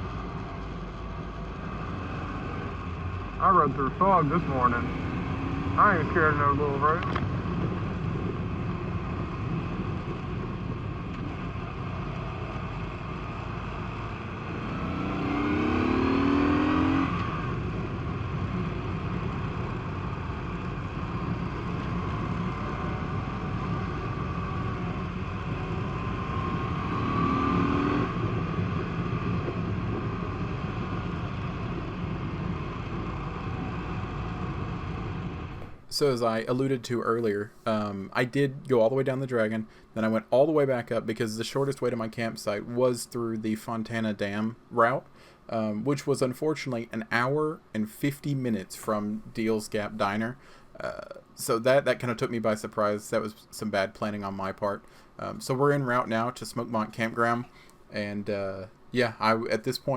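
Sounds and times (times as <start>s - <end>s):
motorcycle engine running: 0.0s - 35.8s.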